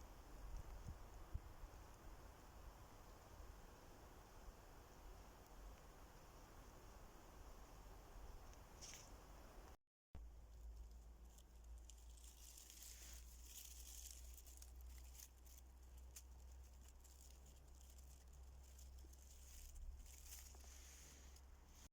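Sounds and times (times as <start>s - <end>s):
faint rustling: 10.4s - 21.9s.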